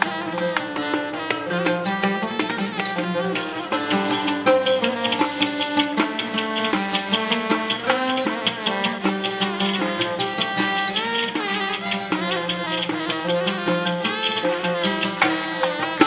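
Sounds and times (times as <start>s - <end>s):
melody instrument playing: 0.0s - 15.8s
hand drum beat: 0.0s - 16.0s.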